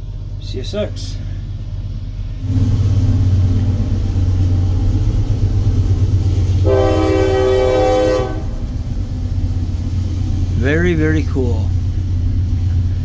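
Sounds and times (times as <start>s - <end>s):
train rumbling past: 0.0s - 13.0s
locomotive horn: 6.6s - 8.6s.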